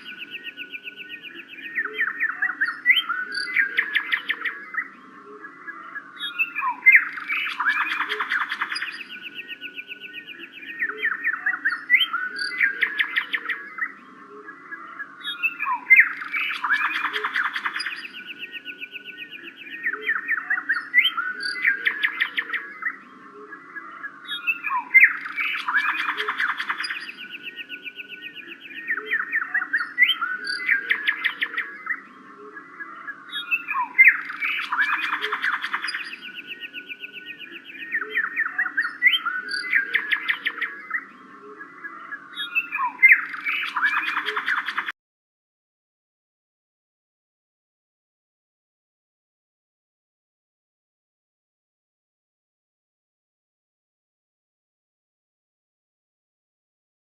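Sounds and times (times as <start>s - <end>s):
birds chirping and trilling: 0.0s - 45.0s.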